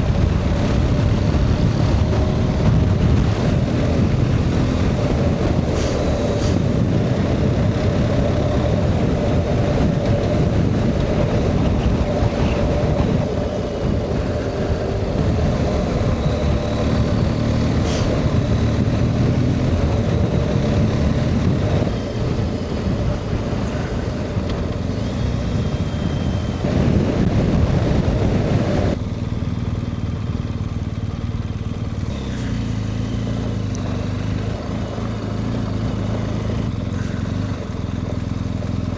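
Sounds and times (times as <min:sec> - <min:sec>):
wind rush: 0:00.0 - 0:29.0
motorcycle engine running: 0:00.0 - 0:38.9.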